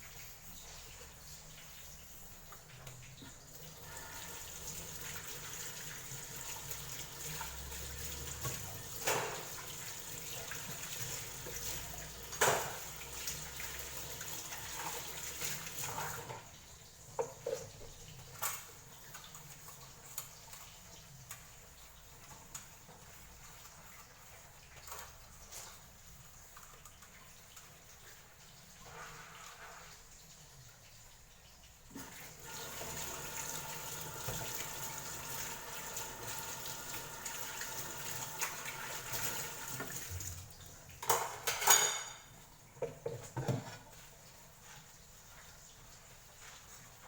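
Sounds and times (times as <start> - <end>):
tap water running into sink: 0.0 - 47.0
clinks and clatters of objects: 41.0 - 43.8.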